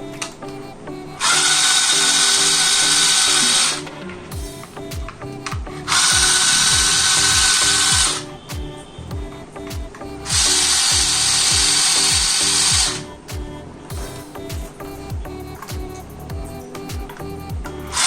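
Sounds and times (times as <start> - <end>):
power tool hissing whir: 0.7 - 13.1
music with thumping beat: 4.3 - 18.0.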